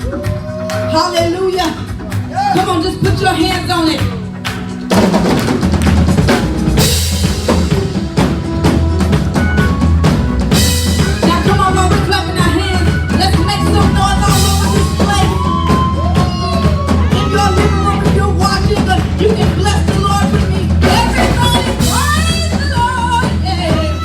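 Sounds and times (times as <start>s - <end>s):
steady bass line: 0.0s - 24.0s
worship band playing: 0.0s - 24.0s
drum kit hits: 2.0s - 24.0s.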